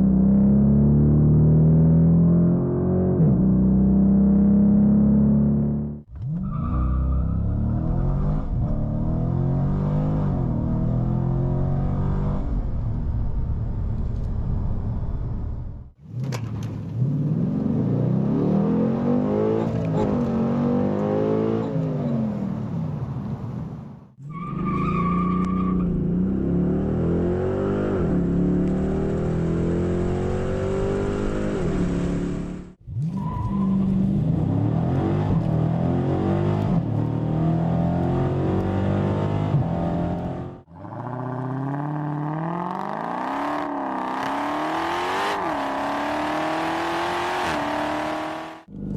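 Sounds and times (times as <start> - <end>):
car engine accelerating hard: 33.8 - 48.9.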